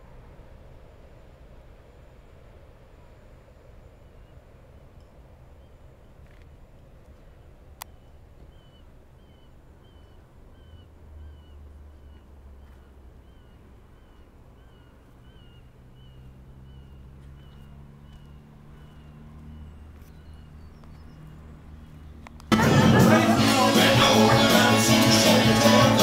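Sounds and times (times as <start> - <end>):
bird chirping: 7.8 - 22.3.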